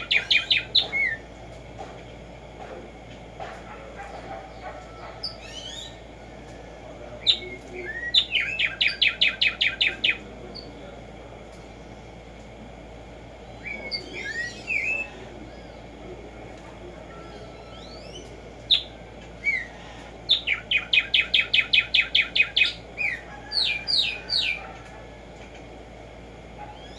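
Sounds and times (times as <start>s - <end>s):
twittering chirps: 0.0s - 1.4s, 4.0s - 10.8s, 13.2s - 25.3s
sparrow singing: 0.0s - 1.6s, 3.4s - 12.3s, 13.3s - 25.8s, 26.6s - 26.9s.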